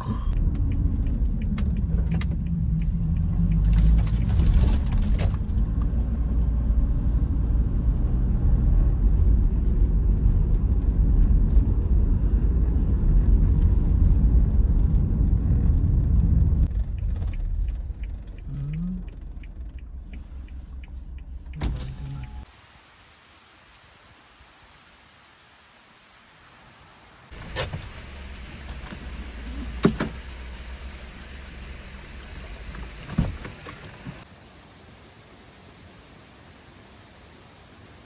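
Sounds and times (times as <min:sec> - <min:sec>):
van engine and road rumble: 0:00.0 - 0:22.5, 0:27.3 - 0:34.4.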